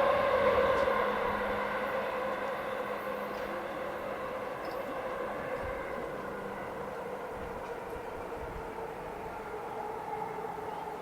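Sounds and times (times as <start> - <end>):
electric train rumble: 0.0 - 11.0.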